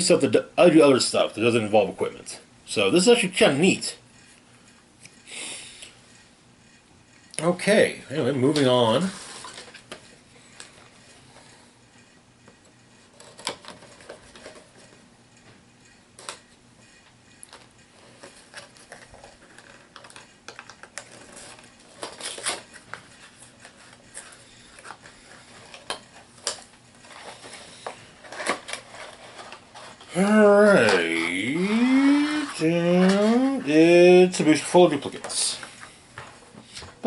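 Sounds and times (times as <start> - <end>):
plastic figures clacking: 23.5 - 33.7.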